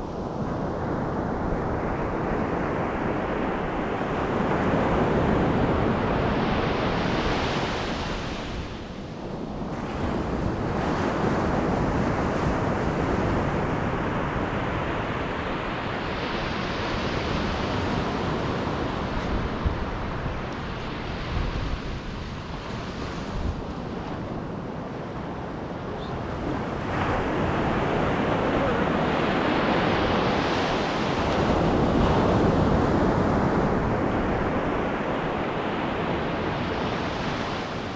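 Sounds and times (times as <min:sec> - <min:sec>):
wind buffeting microphone: 0:00.0 - 0:37.9
ocean surf breaking: 0:09.7 - 0:37.9.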